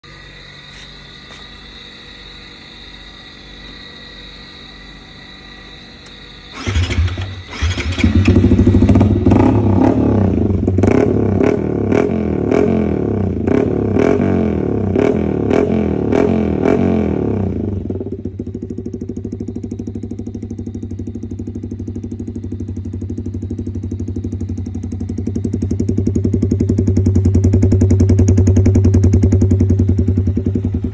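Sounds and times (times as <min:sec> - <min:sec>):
motorcycle engine revving: 0:06.5 - 0:30.9.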